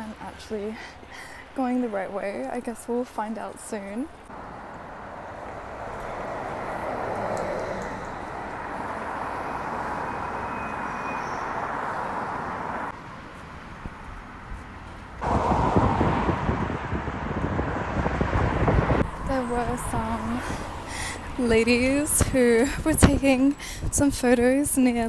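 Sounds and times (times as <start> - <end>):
passing traffic rush: 0.0 - 25.0
rough low rumble: 15.0 - 24.1.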